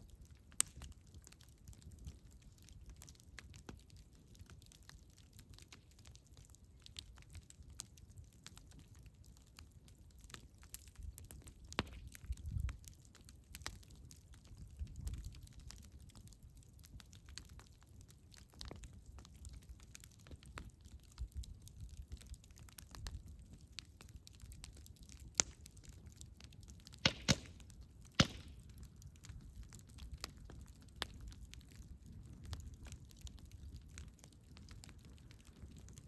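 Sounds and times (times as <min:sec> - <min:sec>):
low fire rumble: 0:00.0 - 0:36.0
wood crackling in campfire: 0:00.0 - 0:36.0
sharp wood snaps: 0:26.9 - 0:28.8.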